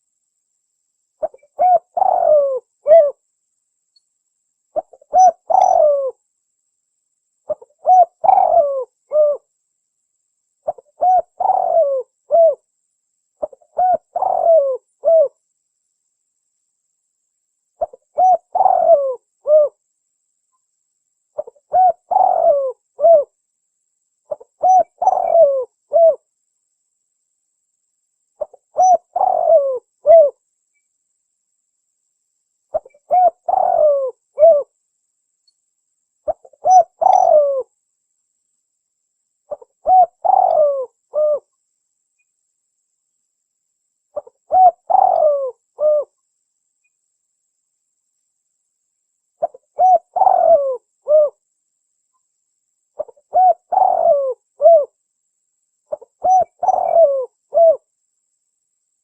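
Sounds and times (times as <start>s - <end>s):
dove cooing: 1.2s - 3.2s, 4.8s - 6.2s, 7.5s - 9.5s, 10.7s - 12.6s, 13.4s - 15.4s, 17.8s - 19.8s, 21.4s - 23.3s, 24.3s - 26.2s, 28.4s - 30.4s, 32.7s - 34.7s, 36.3s - 37.7s, 39.5s - 41.5s, 44.2s - 46.2s, 49.4s - 51.4s, 53.0s - 55.0s, 55.9s - 57.9s.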